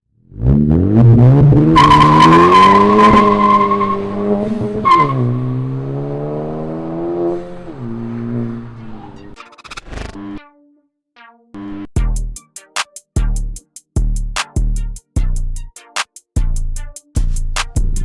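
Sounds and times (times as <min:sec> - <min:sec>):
car engine accelerating: 0:00.2 - 0:09.4
tires squealing: 0:00.4 - 0:09.4.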